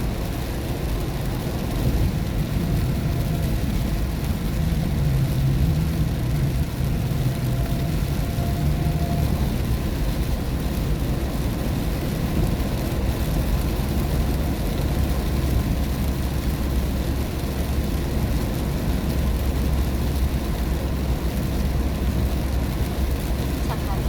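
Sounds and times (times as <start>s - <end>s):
rain hiss on wet road: 0.0s - 24.0s
tyres and engine rumble: 0.0s - 24.0s.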